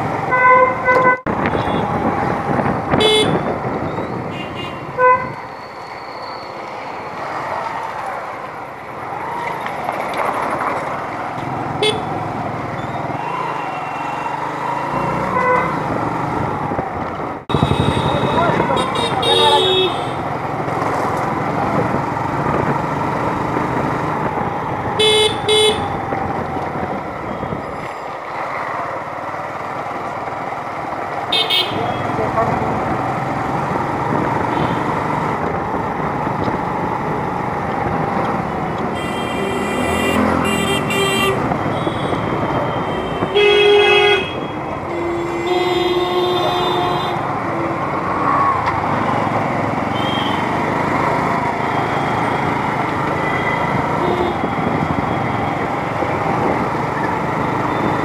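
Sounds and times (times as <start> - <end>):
road and wind noise: 0.0 - 58.0
wind noise: 1.0 - 5.6, 16.4 - 19.3, 25.7 - 28.0, 53.6 - 57.0
vehicle horn toots: 3.0 - 3.4, 17.5 - 20.1, 31.3 - 32.0, 39.0 - 47.2, 49.9 - 50.5.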